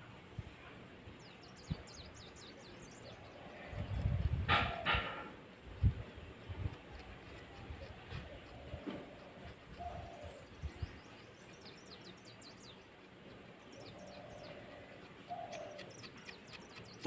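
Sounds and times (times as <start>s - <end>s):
small birds chirping: 0.6s - 17.0s.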